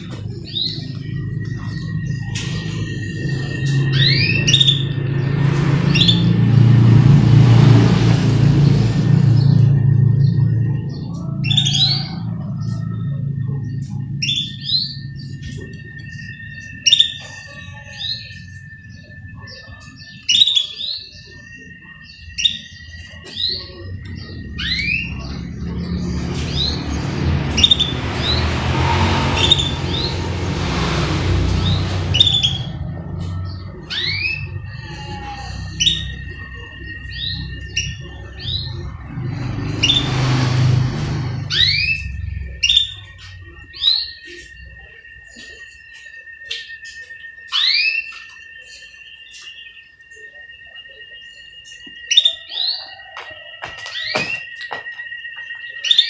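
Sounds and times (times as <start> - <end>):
canaries chirping: 0.0 - 56.0
low rumble with hiss: 23.0 - 45.6.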